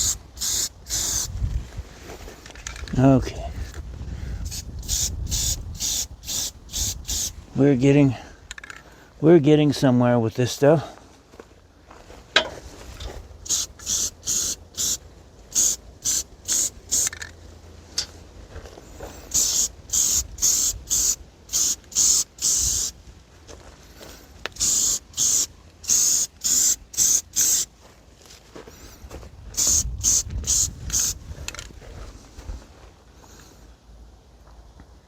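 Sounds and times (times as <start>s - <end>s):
aerosol spray can hissing: 0.0s - 1.4s, 4.4s - 7.4s, 13.4s - 17.2s, 19.1s - 23.0s, 24.5s - 27.7s, 29.6s - 31.2s.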